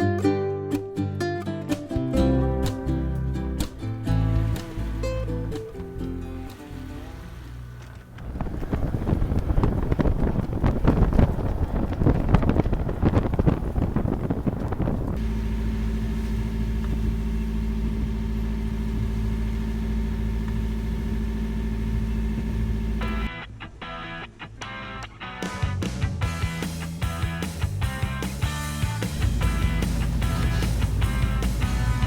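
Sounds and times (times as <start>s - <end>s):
diesel engine drone: 2.2s - 23.9s, 26.2s - 32.0s
wind buffeting microphone: 7.3s - 15.5s.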